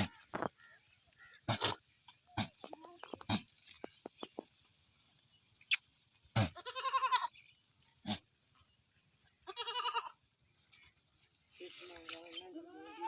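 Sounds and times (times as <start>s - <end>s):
goat bleating: 6.4s - 7.4s, 9.4s - 10.2s.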